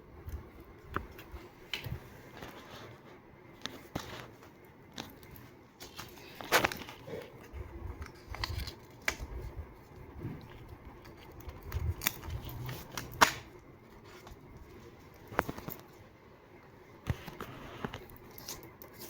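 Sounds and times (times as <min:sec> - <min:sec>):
scissors snipping paper: 0:10.6 - 0:13.6, 0:17.8 - 0:19.0.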